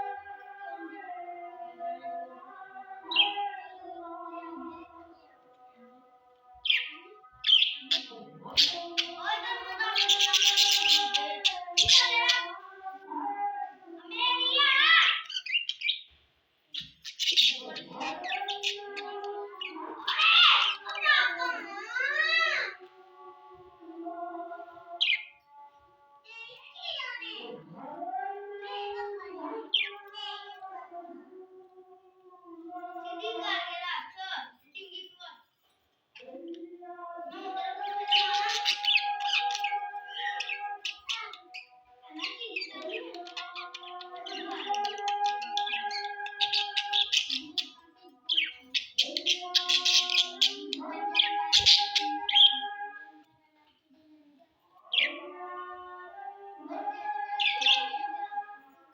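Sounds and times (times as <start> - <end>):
budgies chirping and chattering: 3.0 - 5.2, 6.6 - 12.6, 14.1 - 22.6, 25.0 - 25.4, 28.7 - 30.6, 37.3 - 52.9, 54.8 - 55.4, 57.0 - 58.4
budgerigars chattering and squawking: 7.5 - 12.5, 16.8 - 19.1, 42.3 - 52.6.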